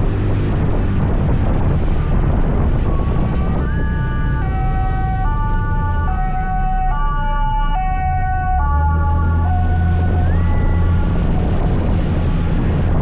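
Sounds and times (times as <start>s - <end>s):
scooter engine and road rumble: 0.0s - 13.0s
two-tone emergency siren: 1.7s - 12.8s.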